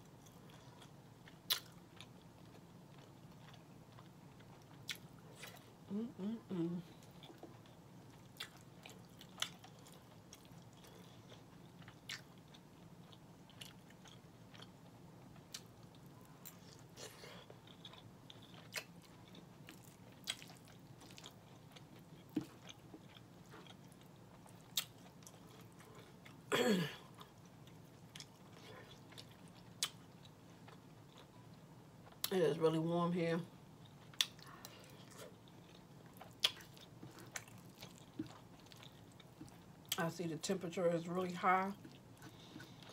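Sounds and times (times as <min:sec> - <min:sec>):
close chewing of food: 0:00.0 - 0:32.4, 0:33.7 - 0:42.9
falling vocal hum: 0:05.9 - 0:07.0.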